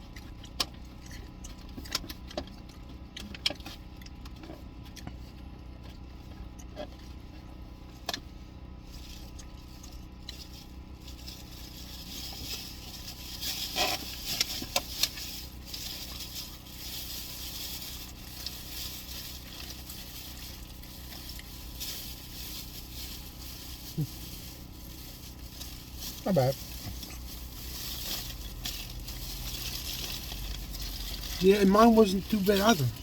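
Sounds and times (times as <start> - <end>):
low hum inside car: 0.0 - 33.0
takeout packaging rustling: 8.9 - 33.0.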